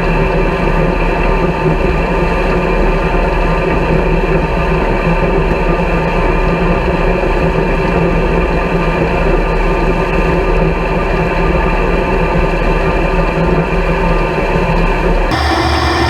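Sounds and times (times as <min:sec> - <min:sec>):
combine harvester running: 0:15.3 - 0:16.0.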